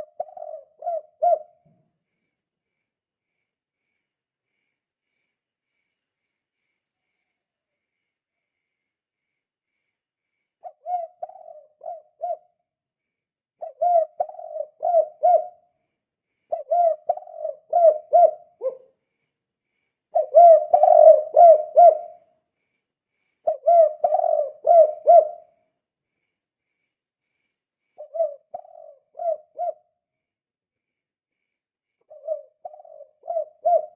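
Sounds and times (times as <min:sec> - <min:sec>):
dove cooing: 0:00.0 - 0:01.7, 0:10.6 - 0:12.6, 0:13.6 - 0:15.6, 0:16.5 - 0:18.9, 0:20.1 - 0:22.2, 0:23.4 - 0:25.6, 0:28.0 - 0:29.9, 0:32.1 - 0:33.9.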